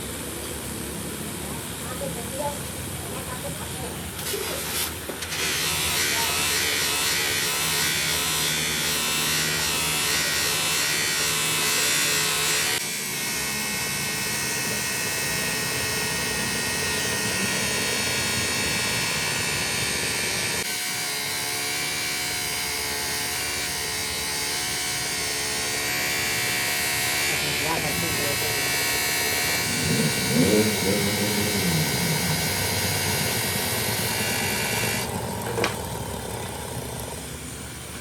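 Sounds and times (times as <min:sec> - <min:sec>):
workshop machinery motor hum: 0:27.5 - 0:38.0.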